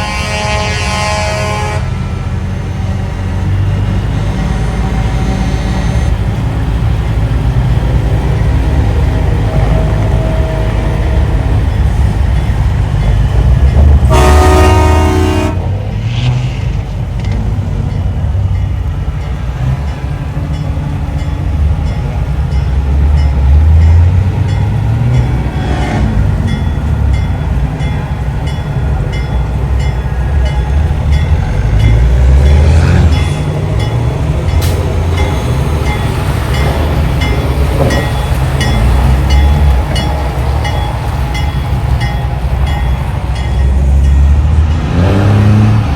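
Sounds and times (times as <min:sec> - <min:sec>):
multi-tone air horn blast: 0:00.0 - 0:02.0, 0:14.1 - 0:15.7
truck diesel engines rumbling: 0:00.0 - 0:45.9.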